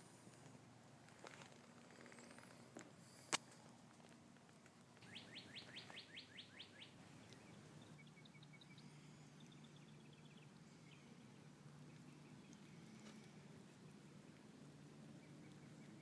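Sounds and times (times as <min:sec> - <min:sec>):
faint bird chirping: 0:05.0 - 0:16.0.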